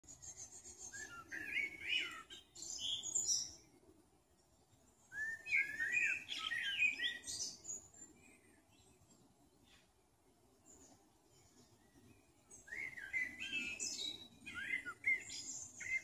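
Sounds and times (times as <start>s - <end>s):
woodland background hiss: 0.0s - 16.0s
songbird warbling: 0.1s - 3.6s, 5.1s - 7.9s, 12.6s - 16.0s.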